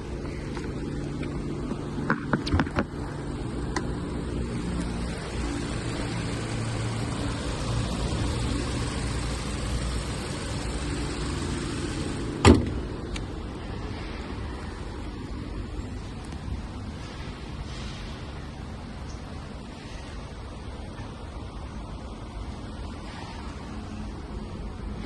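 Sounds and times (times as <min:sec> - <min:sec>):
car engine idling: 0:00.0 - 0:13.2
loud sharp thump: 0:12.4 - 0:12.8.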